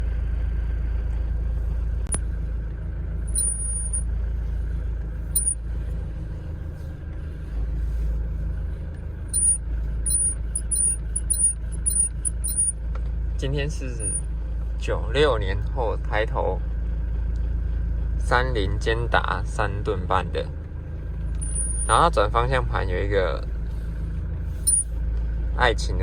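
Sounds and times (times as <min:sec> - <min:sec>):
steady low hum: 0:00.0 - 0:26.0
steering wheel squeaking: 0:03.3 - 0:04.0, 0:05.4 - 0:05.6, 0:09.4 - 0:12.8, 0:21.4 - 0:22.0, 0:24.5 - 0:25.0.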